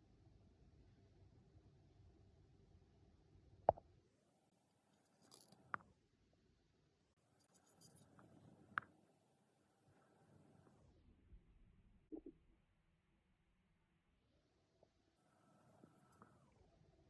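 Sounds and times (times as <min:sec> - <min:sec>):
faint handling noise: 0:04.9 - 0:05.9.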